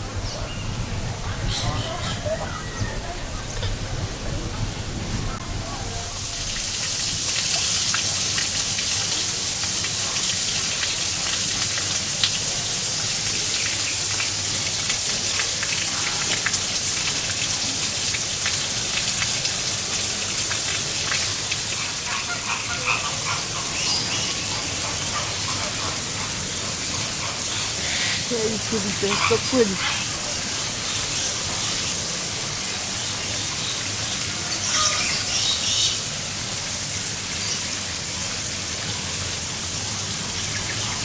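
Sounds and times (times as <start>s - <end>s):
water pattering: 26.8s - 30.5s.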